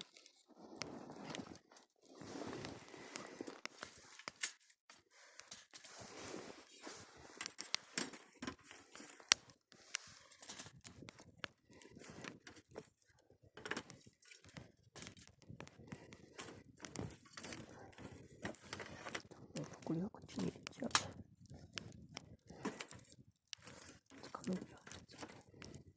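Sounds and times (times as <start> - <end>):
sharp pops and snaps of fire: 0.0 - 25.9
wood campfire crackling: 0.0 - 25.9.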